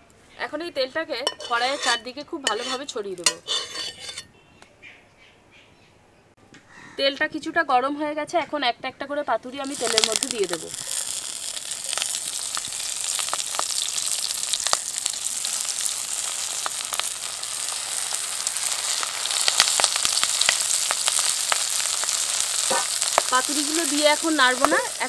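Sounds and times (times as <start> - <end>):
parcels sizzling in hot oil: 1.2 - 4.2, 9.6 - 25.0
sharp crackles: 9.6 - 25.0.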